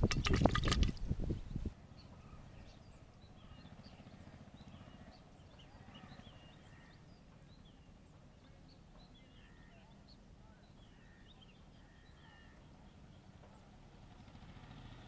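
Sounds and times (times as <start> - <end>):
low wind rumble: 0.0 - 1.8
faint birds chirping: 0.1 - 15.0.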